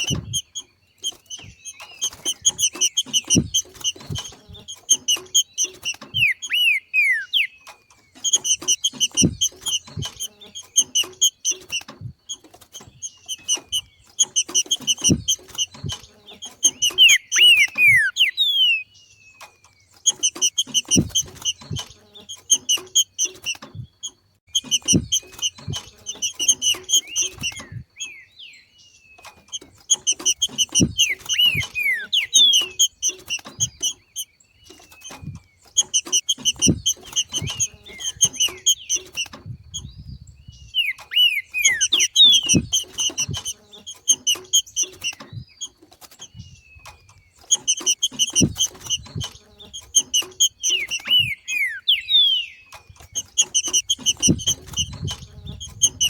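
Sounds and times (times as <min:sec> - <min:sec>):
bird rapid chatter: 0:00.0 - 0:56.0.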